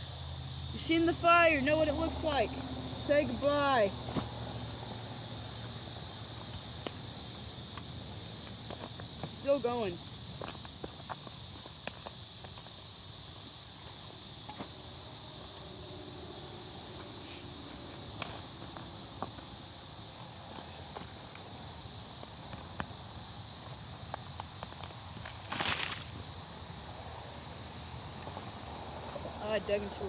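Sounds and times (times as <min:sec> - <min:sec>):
insect chorus: 0:00.0 - 0:30.0
shovel digging into soil: 0:25.2 - 0:26.2.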